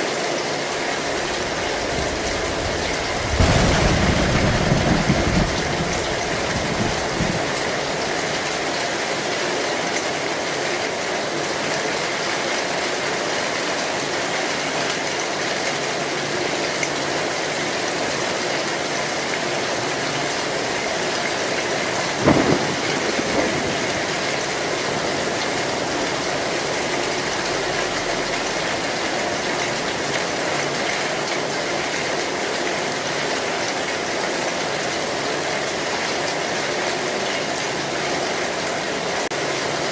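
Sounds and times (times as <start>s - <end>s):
rain drumming on a tin roof: 0.0s - 39.9s
thunder rumble: 1.1s - 8.7s, 20.4s - 30.4s.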